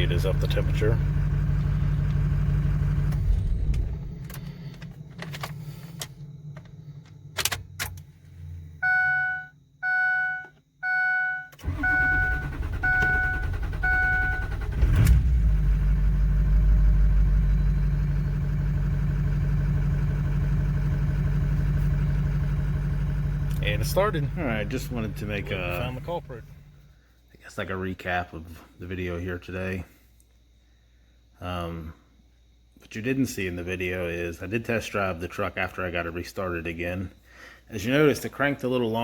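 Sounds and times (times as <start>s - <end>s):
diesel engine idling: 0.0s - 7.4s, 11.6s - 26.9s
engine cranking: 11.6s - 15.5s.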